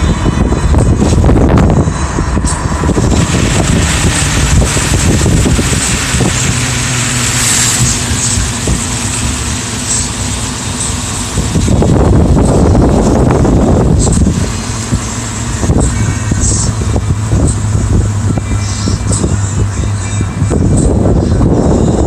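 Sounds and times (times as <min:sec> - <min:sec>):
loud steady rushing noise: 0:00.0 - 0:22.0
low engine hum: 0:00.0 - 0:22.0.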